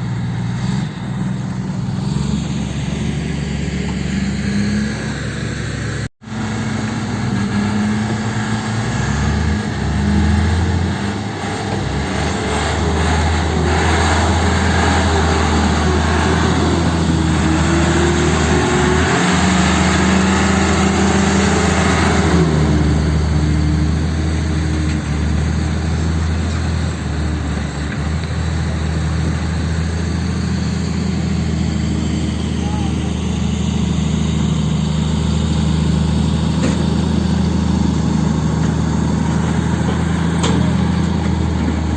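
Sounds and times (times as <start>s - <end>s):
heavy diesel engines running: 0.0s - 41.9s.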